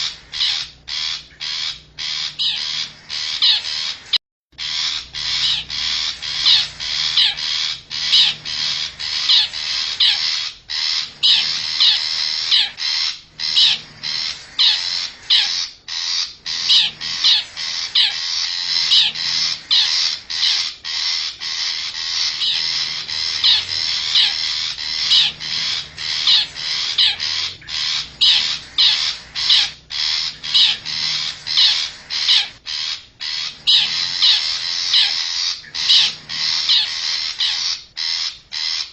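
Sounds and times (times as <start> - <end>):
shrike harsh rasping calls: 0.0 - 38.9.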